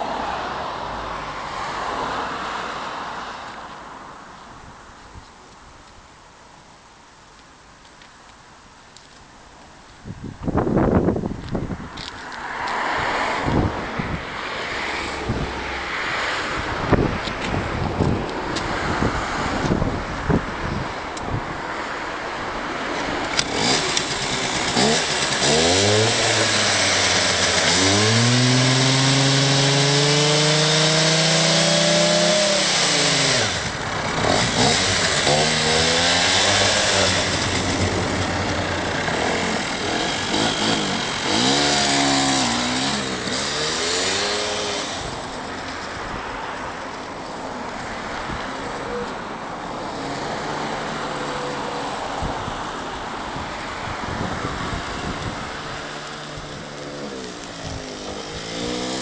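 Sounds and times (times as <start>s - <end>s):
wind noise on microphone: 9.9s - 12.2s, 13.0s - 27.2s, 52.1s - 56.8s, 57.4s - 59.0s
engine revving and idling: 23.4s - 45.2s, 56.8s - 59.0s.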